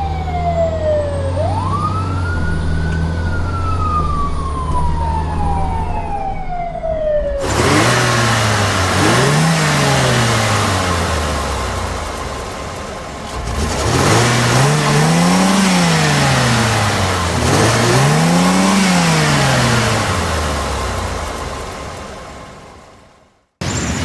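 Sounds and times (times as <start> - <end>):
siren wailing: 0.0 - 10.8, 15.0 - 21.1
steady engine hum: 0.0 - 24.0
engine revving: 7.4 - 23.0.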